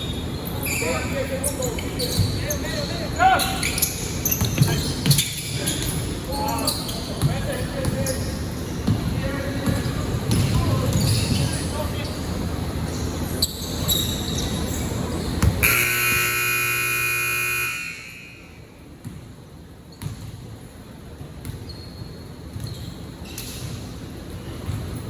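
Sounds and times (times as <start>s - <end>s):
court noise: 0.1s - 21.8s
basketball bouncing: 8.8s - 11.4s, 15.3s - 15.9s, 19.9s - 20.5s, 24.6s - 25.0s
scoreboard buzzer blast: 15.6s - 18.5s.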